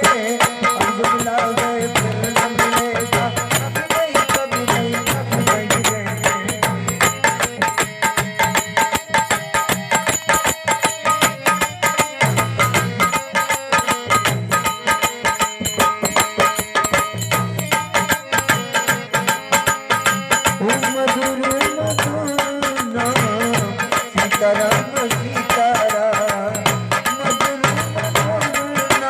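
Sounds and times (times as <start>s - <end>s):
hand drum fast rhythm: 0.0s - 29.0s
held melody line: 0.0s - 29.0s
jingling percussion: 0.0s - 29.0s.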